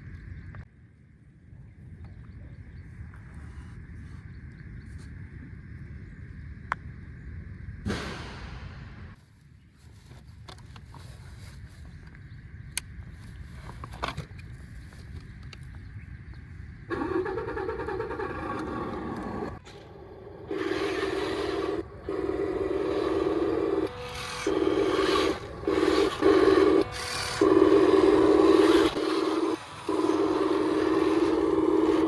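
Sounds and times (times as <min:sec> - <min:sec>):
electric motor and gearbox whirring: 0:16.9 - 0:32.0.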